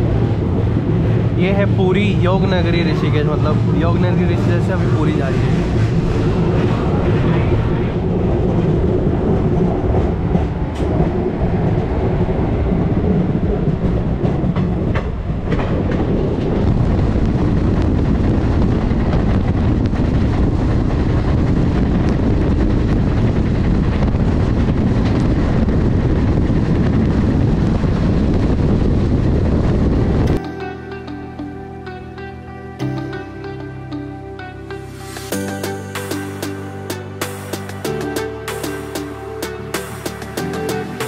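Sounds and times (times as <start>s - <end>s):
train wheels rumbling on rails: 0.0s - 30.4s
rushing wind: 0.0s - 41.0s.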